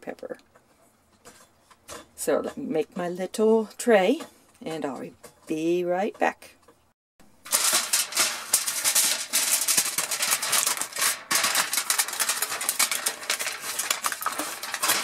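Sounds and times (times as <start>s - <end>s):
aluminum foil crinkling: 7.4s - 15.0s.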